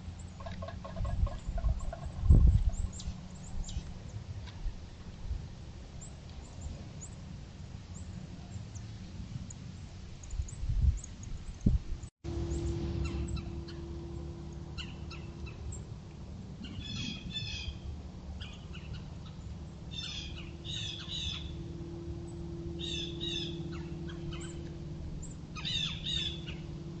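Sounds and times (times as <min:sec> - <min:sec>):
low hum and rumble: 0:00.0 - 0:27.0
birds chirping: 0:10.2 - 0:27.0.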